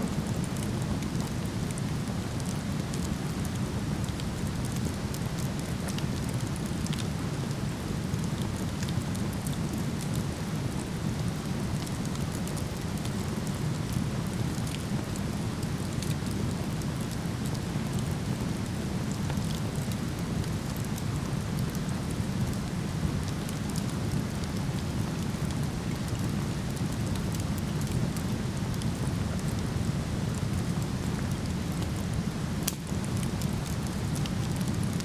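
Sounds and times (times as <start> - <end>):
wood fire crackling: 23.3 - 35.0.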